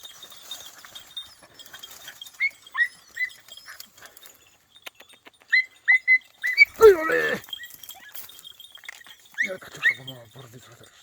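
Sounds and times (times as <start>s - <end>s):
puppies yelping: 1.5s - 4.2s, 5.4s - 8.4s, 9.2s - 10.2s.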